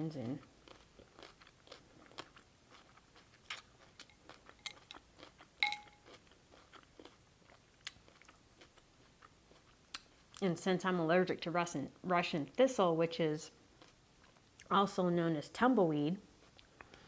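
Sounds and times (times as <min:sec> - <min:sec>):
chewing and crunching: 0:00.2 - 0:10.4, 0:13.7 - 0:14.7, 0:16.3 - 0:17.0
bright clink: 0:05.6 - 0:06.0.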